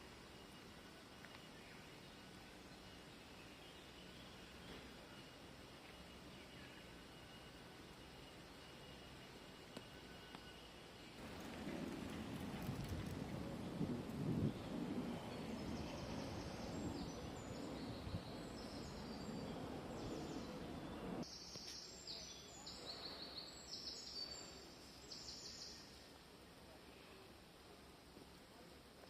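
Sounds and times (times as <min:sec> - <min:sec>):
small birds singing: 0:00.1 - 0:26.0
low rumbling noise: 0:11.2 - 0:21.3.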